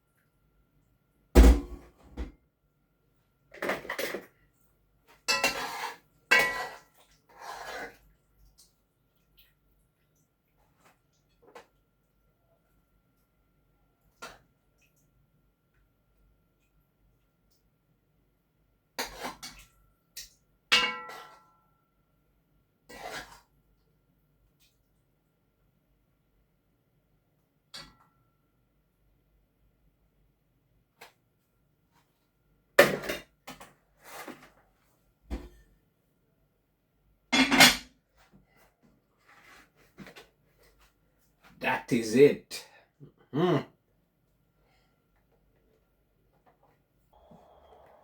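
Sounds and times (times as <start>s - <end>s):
sharp knock: 1.4s - 1.9s
utensils clattering on pots: 5.3s - 6.9s, 37.4s - 37.9s.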